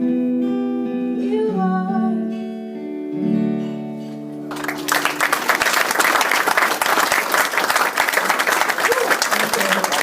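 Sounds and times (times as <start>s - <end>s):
audience applause: 4.5s - 10.0s.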